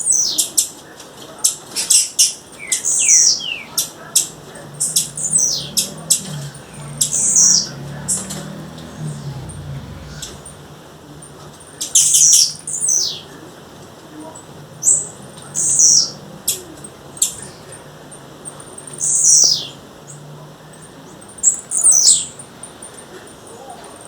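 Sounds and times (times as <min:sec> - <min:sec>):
bird calling: 0:02.6 - 0:11.4.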